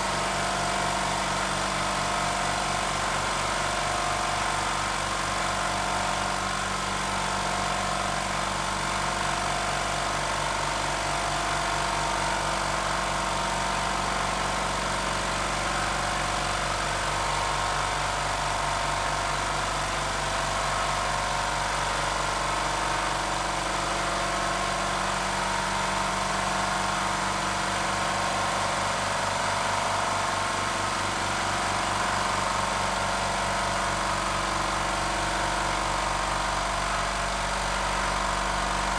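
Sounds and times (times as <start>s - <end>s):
air compressor running: 0.0s - 38.9s.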